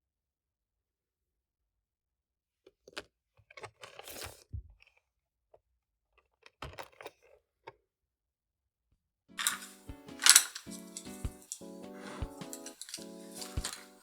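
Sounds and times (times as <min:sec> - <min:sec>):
crinkling crunchy rustles: 0:09.4 - 0:14.0
handling clicks: 0:09.4 - 0:14.0.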